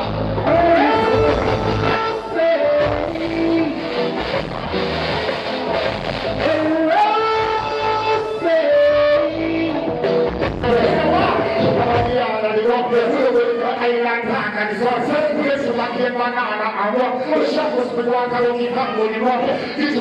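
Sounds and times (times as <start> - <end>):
live reggae band: 0.0 - 20.0
person singing: 0.4 - 4.4, 6.4 - 14.4.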